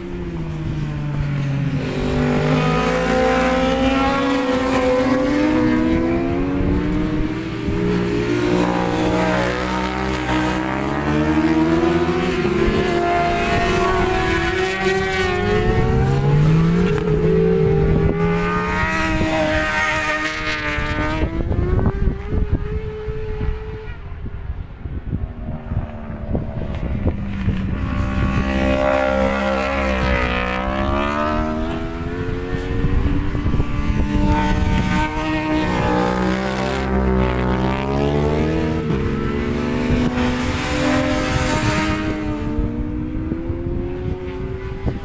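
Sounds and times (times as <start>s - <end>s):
racing motorcycles revving past: 0.0s - 45.0s.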